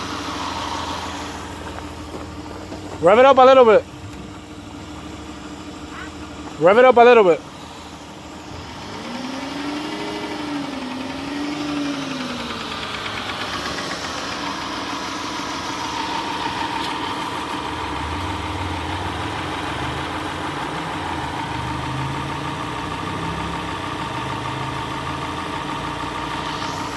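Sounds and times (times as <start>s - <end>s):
car engine revving and idling: 0.0s - 26.9s.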